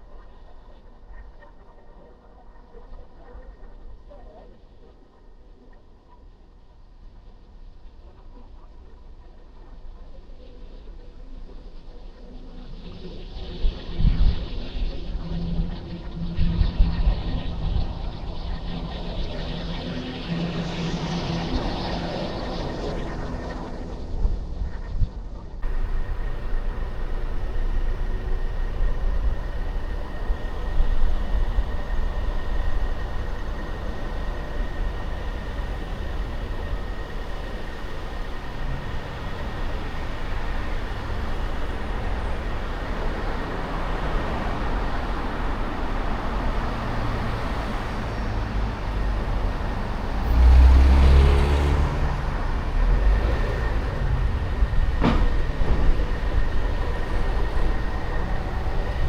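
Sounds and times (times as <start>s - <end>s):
car engine and tyre rumble: 25.6s - 59.0s.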